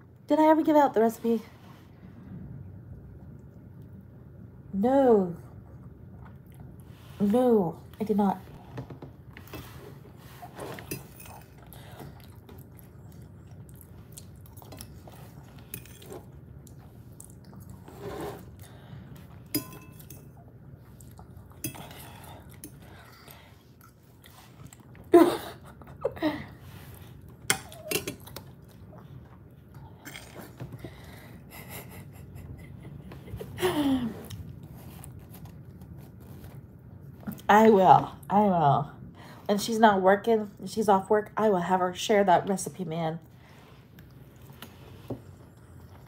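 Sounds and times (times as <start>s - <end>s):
person chewing: 11.0s - 20.0s, 20.7s - 25.1s.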